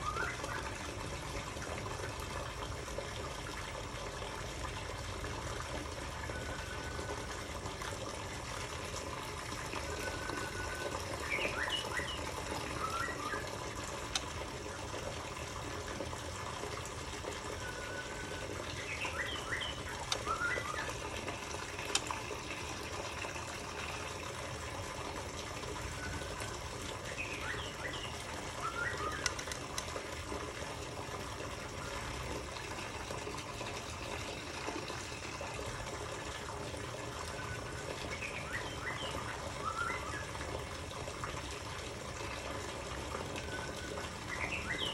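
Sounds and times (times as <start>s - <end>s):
bird whistles: 0.0s - 0.6s, 10.0s - 13.5s, 17.6s - 20.9s, 27.1s - 29.3s, 37.3s - 40.3s
running water: 0.0s - 44.9s.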